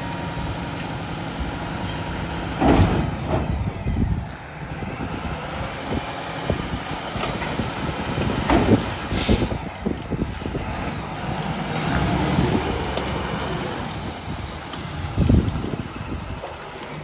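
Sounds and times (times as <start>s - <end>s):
garbage truck engine running: 0.0s - 17.0s
clanks and knocks from hopper: 1.8s - 3.7s, 6.8s - 9.0s
air release hiss: 9.1s - 9.6s.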